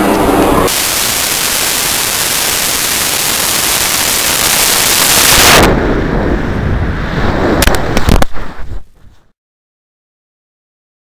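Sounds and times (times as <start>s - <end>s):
rocket motors roaring: 0.0s - 7.7s
low rumble: 0.0s - 9.2s
sharp cracks: 7.6s - 8.4s.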